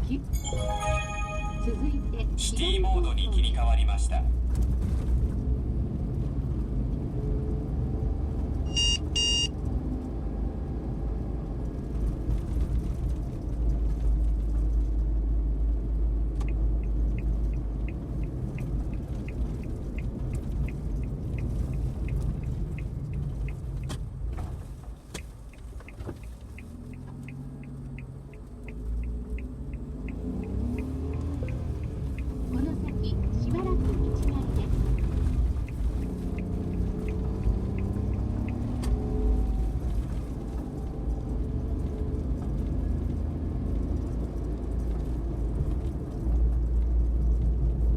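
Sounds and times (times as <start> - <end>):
van engine and road noise: 0.0 - 47.9
short electronic beep: 0.3 - 2.9, 8.7 - 9.5
turn signal ticking: 15.5 - 47.9.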